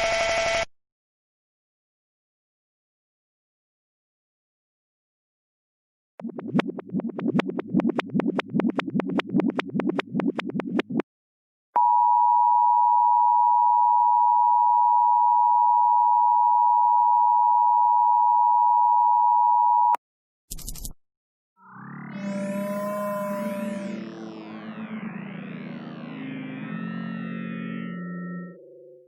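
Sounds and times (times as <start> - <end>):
rapid rough pulsing: 6.2 - 11.0
steady electronic tone: 6.2 - 11.0, 21.6 - 29.0.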